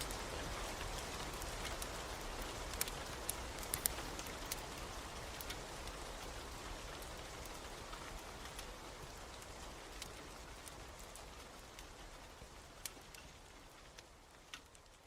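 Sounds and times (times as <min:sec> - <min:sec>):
steady rain: 0:00.0 - 0:15.0
wood fire crackling: 0:00.0 - 0:15.0.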